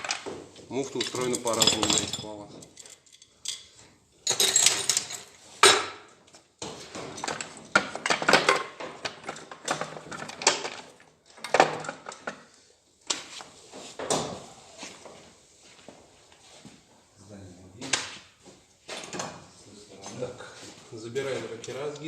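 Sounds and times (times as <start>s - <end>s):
metal engine parts clinking: 0.8s - 3.7s.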